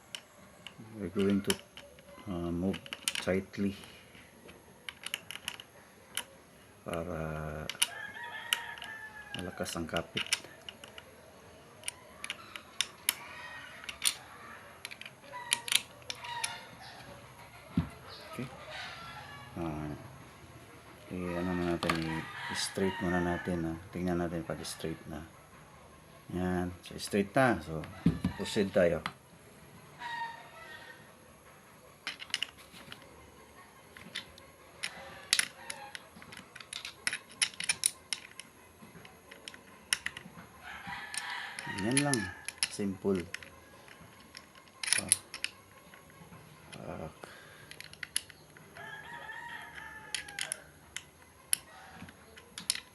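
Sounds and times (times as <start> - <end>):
tool and metal parts clicking: 0.0 - 4.0, 4.9 - 11.2, 11.8 - 17.1, 21.6 - 22.7, 32.0 - 33.1, 33.9 - 52.9.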